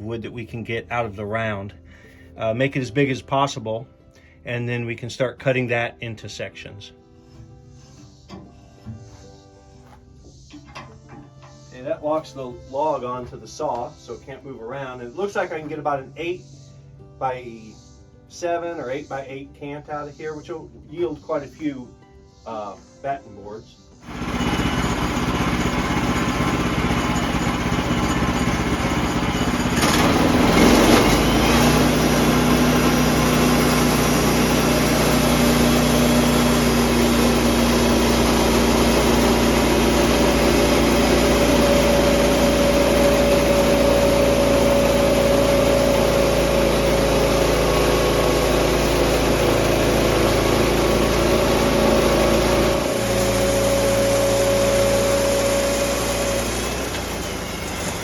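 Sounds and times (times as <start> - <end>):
engine-driven sawmill running: 24.0 - 58.0.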